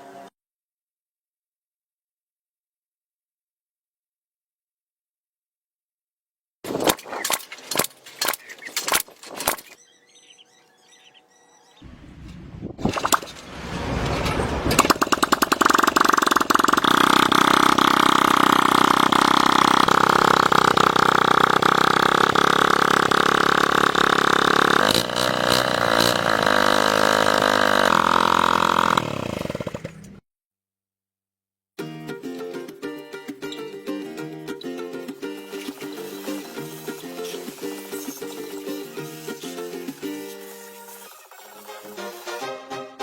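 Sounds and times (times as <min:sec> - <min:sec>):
motorcycle engine starting and revving: 0:11.8 - 0:30.2, 0:35.4 - 0:39.4.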